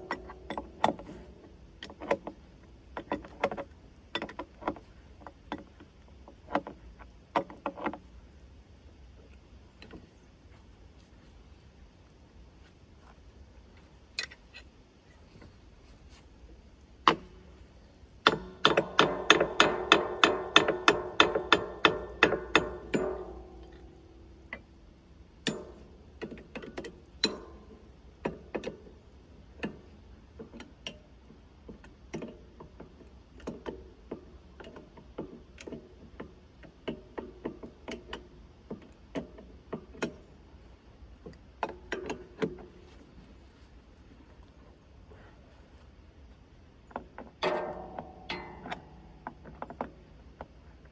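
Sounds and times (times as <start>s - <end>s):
wrench striking metal: 18.2s - 24.6s, 25.5s - 26.0s, 27.2s - 27.8s, 47.4s - 49.6s
metal clicks and taps: 18.2s - 24.7s, 25.4s - 28.8s, 46.9s - 50.6s.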